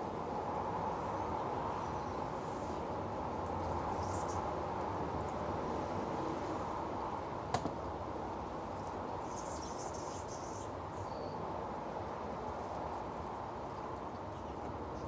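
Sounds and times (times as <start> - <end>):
small bird chirping: 3.6 - 4.4, 9.2 - 11.4.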